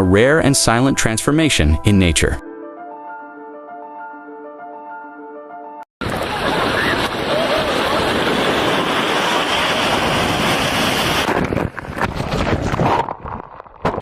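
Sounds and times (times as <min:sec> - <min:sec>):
rushing water: 0:06.0 - 0:11.5
wind on microphone: 0:06.0 - 0:14.0.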